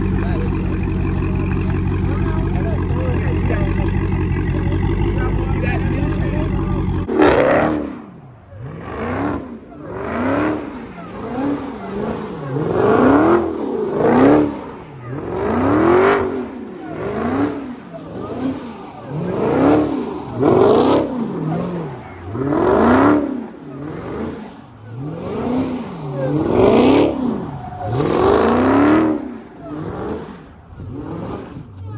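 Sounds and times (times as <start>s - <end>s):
car engines revving: 0.0s - 31.9s.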